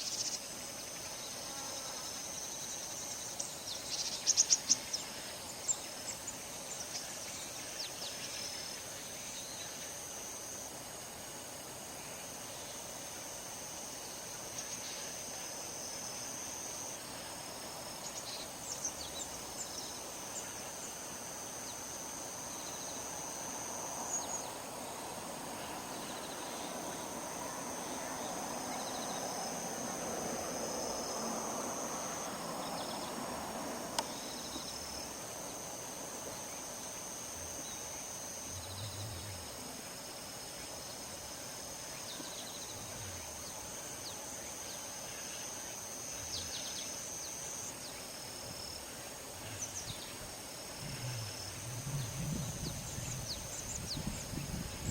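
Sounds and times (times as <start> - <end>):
insects trilling: 0.0 - 54.9
wind through a field: 0.0 - 54.9.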